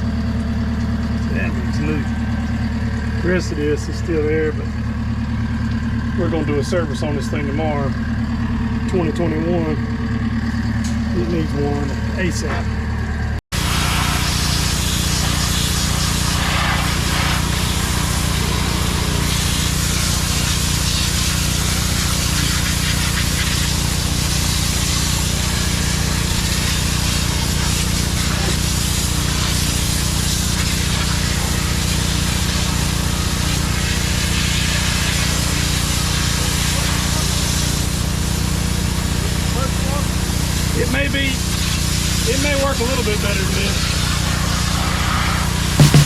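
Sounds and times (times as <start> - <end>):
engine drone: 0.0 - 46.0
high-pressure water spray hiss: 13.6 - 46.0.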